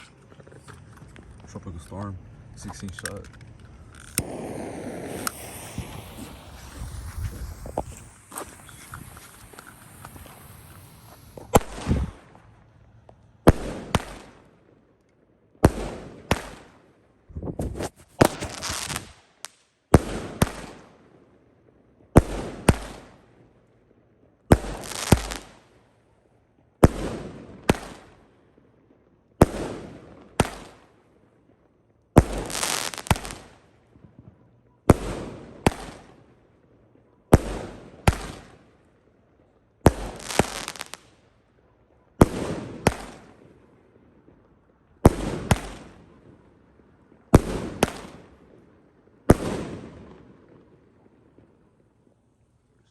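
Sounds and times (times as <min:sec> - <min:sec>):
firework bangs and bursts: 0:03.8 - 0:14.9, 0:15.6 - 0:23.6, 0:24.4 - 0:25.8, 0:26.8 - 0:28.6, 0:29.4 - 0:36.6, 0:37.3 - 0:39.0, 0:39.8 - 0:41.2, 0:42.2 - 0:51.7.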